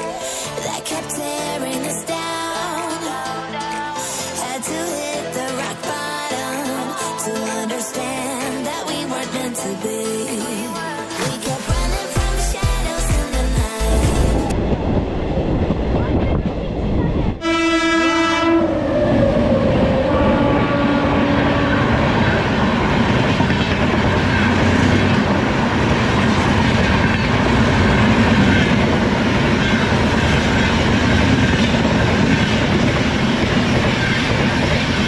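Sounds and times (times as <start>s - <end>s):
train rumble and wheel clatter: 13.6s - 35.0s
train horn blasts: 17.4s - 22.4s.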